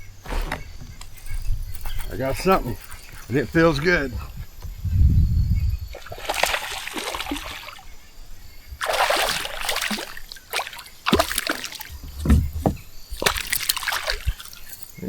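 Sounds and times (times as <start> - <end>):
fish splashing at water surface: 6.0 - 7.9, 8.8 - 14.7.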